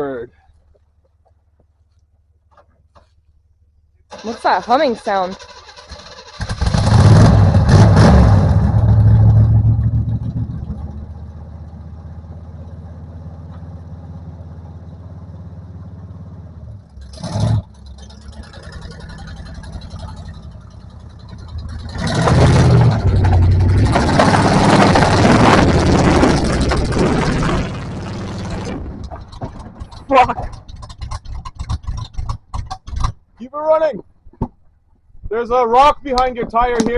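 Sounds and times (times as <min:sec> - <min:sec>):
truck engine revving and idling: 0:04.1 - 0:33.4.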